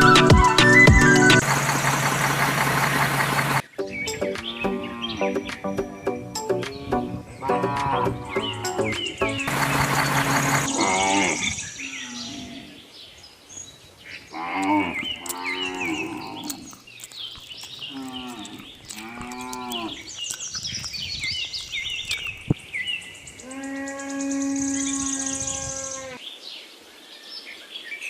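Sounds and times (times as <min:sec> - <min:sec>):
birds chirping: 0:00.0 - 0:28.0
cows mooing: 0:04.5 - 0:05.4, 0:07.4 - 0:08.9, 0:09.5 - 0:12.8, 0:14.3 - 0:16.8, 0:17.9 - 0:20.1, 0:23.4 - 0:26.2.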